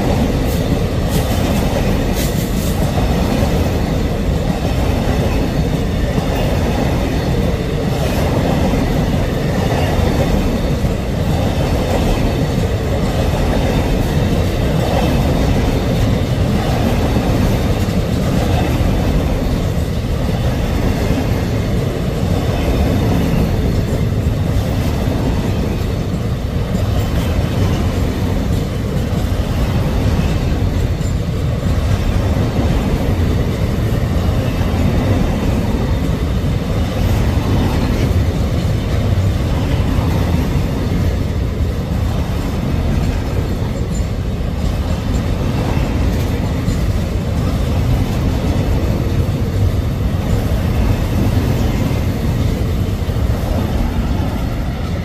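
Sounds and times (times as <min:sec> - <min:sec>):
steel wheels rumbling on rails: 0:00.0 - 0:55.0.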